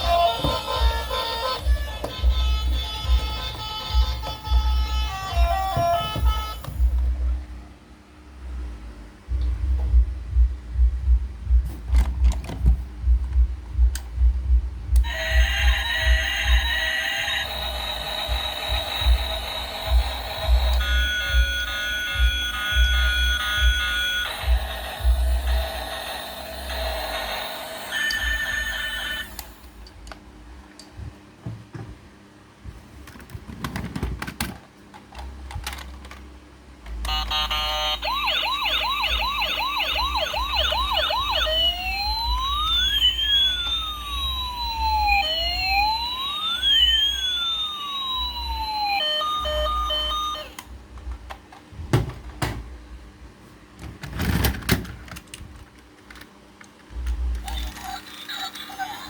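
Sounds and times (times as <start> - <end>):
electronic toy siren: 0.0 - 6.8, 15.0 - 29.6, 37.0 - 50.8.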